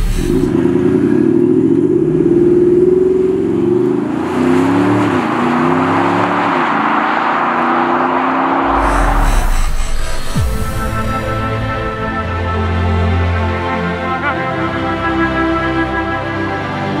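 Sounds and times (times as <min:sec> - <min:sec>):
car engine accelerating hard: 0:00.0 - 0:12.5.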